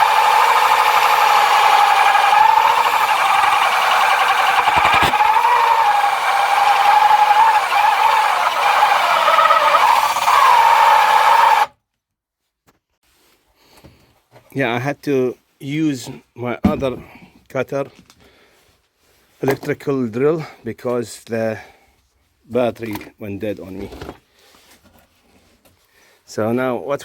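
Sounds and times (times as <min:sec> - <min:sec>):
electric drill cutting wood: 0:00.0 - 0:11.7.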